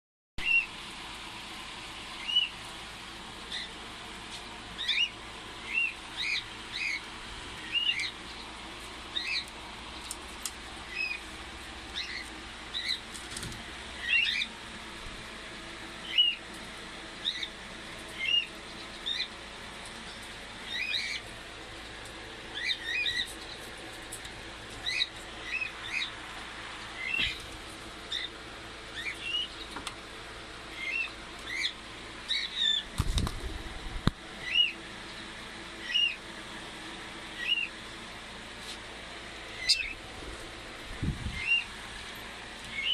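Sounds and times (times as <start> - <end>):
cockatiel chirping: 39.6 - 40.0.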